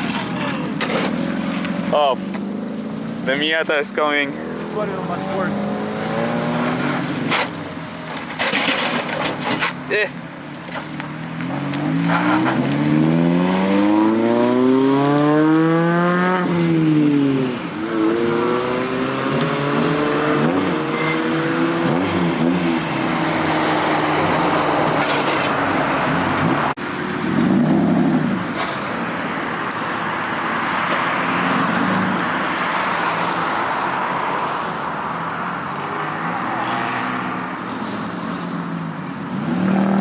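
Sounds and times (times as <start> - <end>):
steady traffic noise: 0.0 - 40.0
car accelerating past: 2.4 - 7.4, 11.2 - 28.9, 35.7 - 38.7, 39.3 - 40.0.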